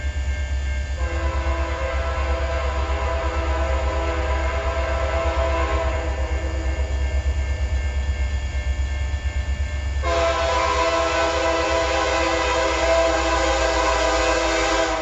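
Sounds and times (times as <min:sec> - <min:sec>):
passing train rumble: 0:00.0 - 0:15.0
locomotive air horn: 0:01.0 - 0:06.7, 0:10.0 - 0:15.0.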